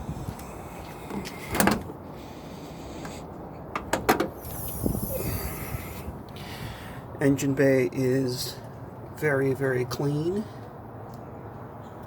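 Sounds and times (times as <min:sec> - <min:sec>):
car door shutting: 0:01.1 - 0:01.9.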